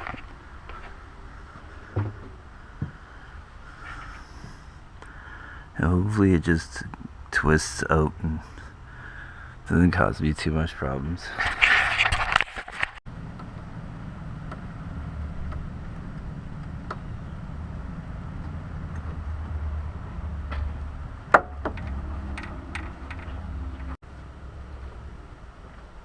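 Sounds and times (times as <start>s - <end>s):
steady low rumble: 13.1s - 26.0s.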